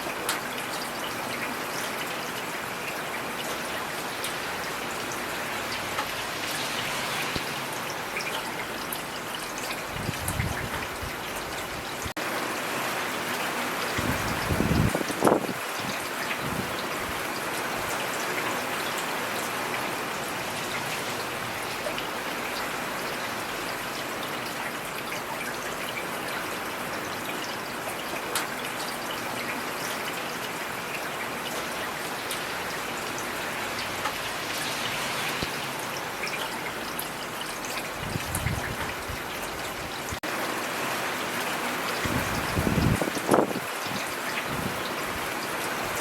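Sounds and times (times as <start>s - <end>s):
rain hissing: 4.0s - 17.2s, 31.5s - 46.0s.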